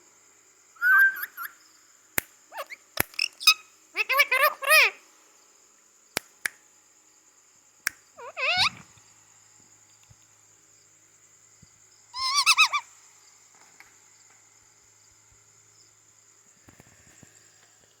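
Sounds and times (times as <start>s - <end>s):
parrot calling: 0.8s - 1.6s, 2.5s - 5.0s, 8.2s - 8.8s, 12.2s - 12.9s.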